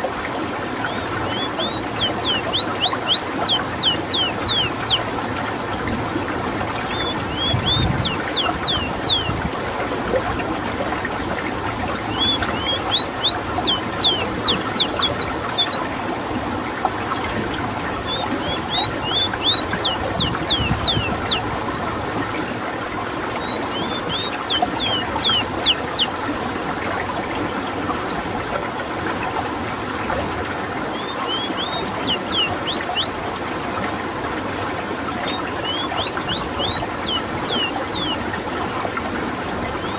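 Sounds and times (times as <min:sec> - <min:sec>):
bird singing whistled sweeps: 0:00.8 - 0:05.0, 0:06.8 - 0:09.4, 0:12.1 - 0:15.9, 0:18.0 - 0:21.5, 0:23.4 - 0:26.2, 0:30.9 - 0:33.2, 0:35.2 - 0:38.2.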